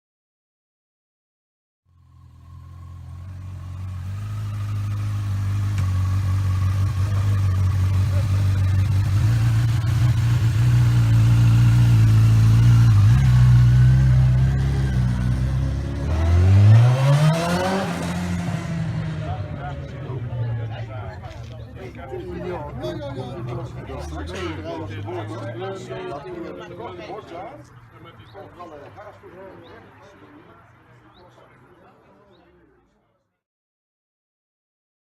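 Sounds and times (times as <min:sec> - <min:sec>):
engine running and revving: 0:01.9 - 0:20.1.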